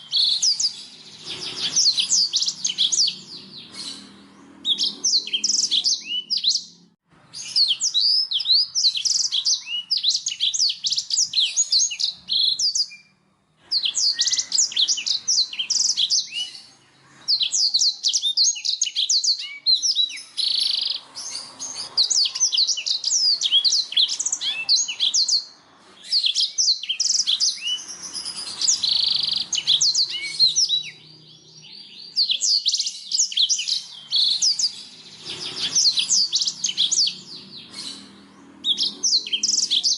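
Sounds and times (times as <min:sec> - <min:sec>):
bird singing high trills: 0:00.0 - 0:39.9.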